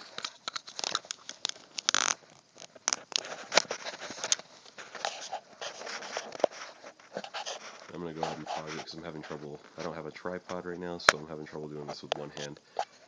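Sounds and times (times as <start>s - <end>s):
plastic parts clicking: 0.0s - 4.4s
plastic scrape: 0.0s - 11.2s, 11.8s - 13.0s.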